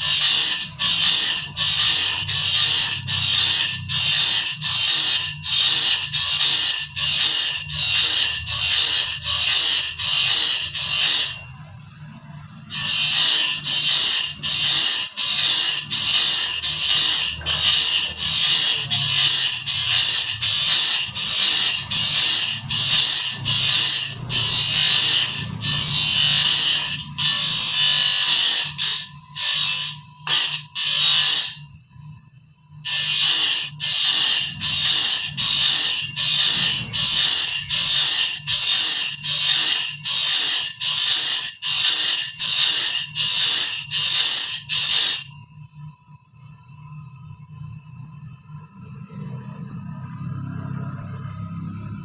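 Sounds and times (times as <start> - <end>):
sharpening machine grinding saw teeth: 0.0 - 11.4, 12.6 - 31.7, 32.8 - 45.4.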